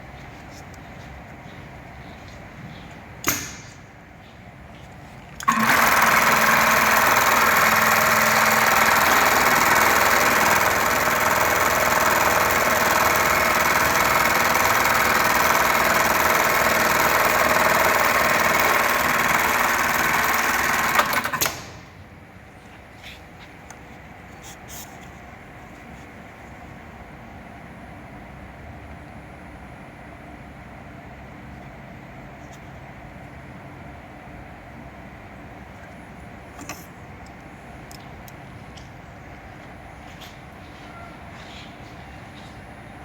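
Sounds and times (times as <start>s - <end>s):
sharp click: 3.2s - 3.8s
sewing machine running: 5.4s - 21.6s.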